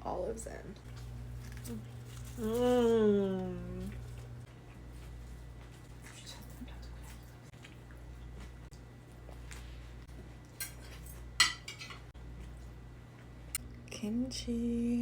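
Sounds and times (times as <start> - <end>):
low steady hum: 0.0 - 15.0
utensils clinking against dishes: 10.6 - 12.1.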